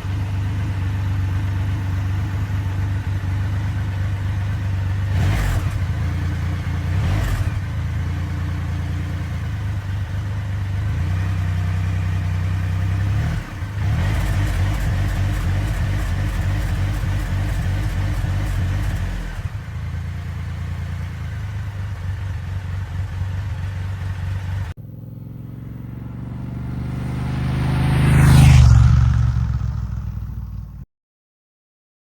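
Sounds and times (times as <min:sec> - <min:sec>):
motorcycle engine running: 0:00.0 - 0:30.8
motorcycle passing close by: 0:24.8 - 0:30.8.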